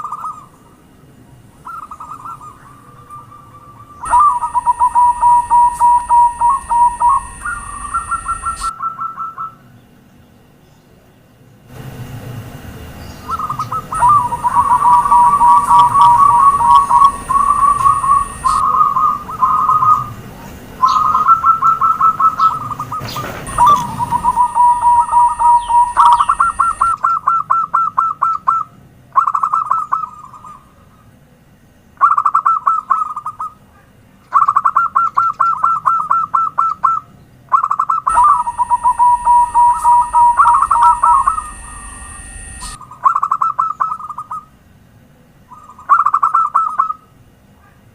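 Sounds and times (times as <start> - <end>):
doves cooing: 1.6 - 9.6, 13.3 - 28.6, 34.3 - 44.4.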